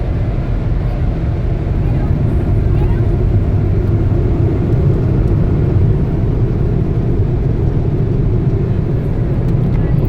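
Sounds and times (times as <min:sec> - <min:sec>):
car wash machinery rumbling: 0:00.0 - 0:10.0.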